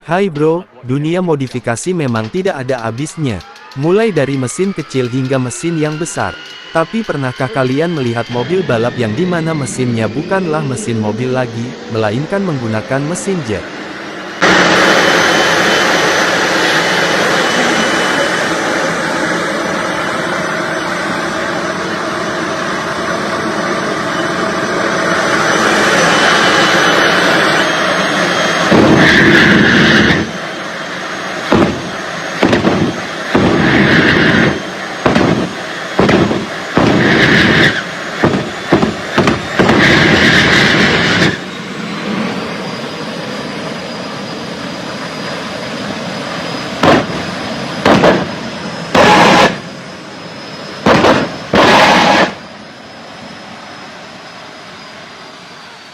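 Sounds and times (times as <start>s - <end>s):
jet engine loud blasts: 0.0s - 55.9s
jet engine roaring: 0.0s - 55.9s.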